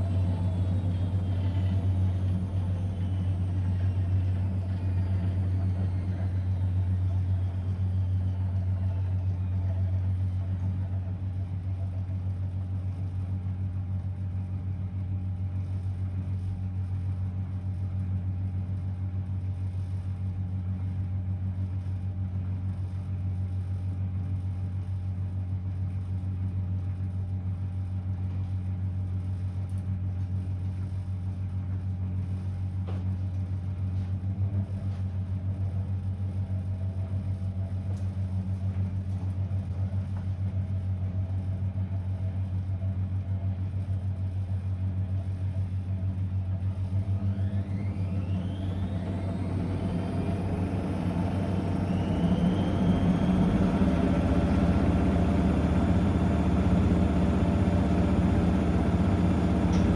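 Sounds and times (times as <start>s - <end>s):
washing machine spinning: 0.0s - 12.0s, 46.7s - 59.9s.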